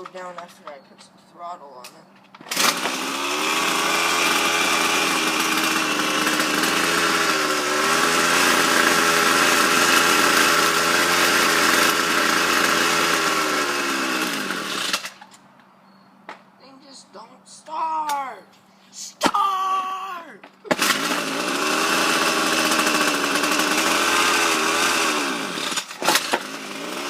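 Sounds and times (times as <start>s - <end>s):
string trimmer engine running: 2.4s - 15.3s, 20.7s - 27.0s.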